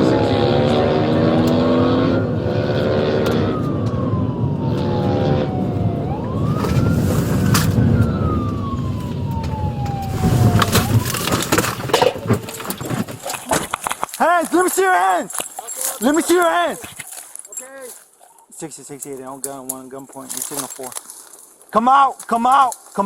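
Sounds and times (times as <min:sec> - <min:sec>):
police siren wailing: 0:00.0 - 0:13.5
car engine: 0:00.0 - 0:13.8
road noise: 0:00.0 - 0:23.0.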